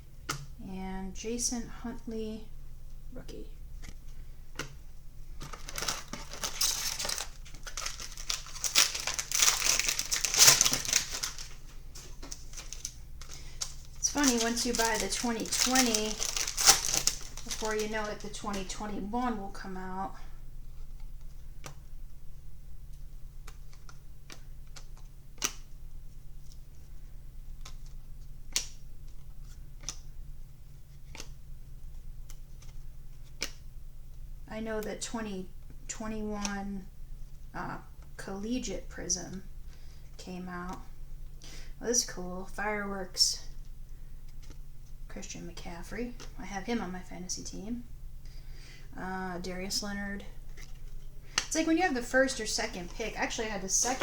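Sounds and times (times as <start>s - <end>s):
plastic foil wrapper crinkling: 5.4s - 19.0s, 50.5s - 54.0s
cards clicking and tapping: 31.1s - 31.4s.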